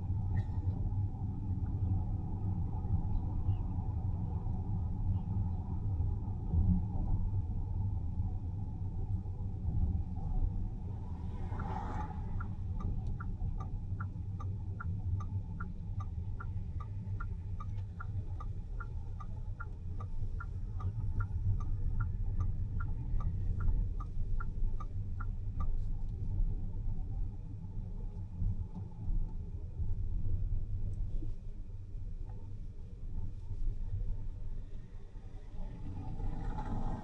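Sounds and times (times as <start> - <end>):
car driving rumble: 0.0 - 37.0
turn signal ticking: 9.2 - 27.8.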